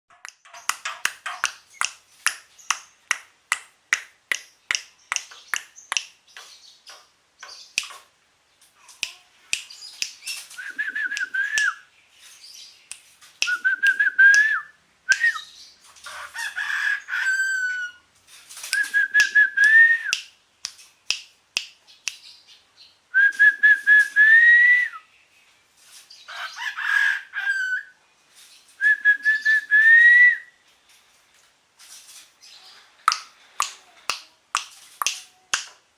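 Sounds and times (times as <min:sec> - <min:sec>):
bird whistled calls: 0:09.8 - 0:11.9, 0:13.4 - 0:15.6, 0:28.8 - 0:30.6
bird clicking notes: 0:33.1 - 0:35.2.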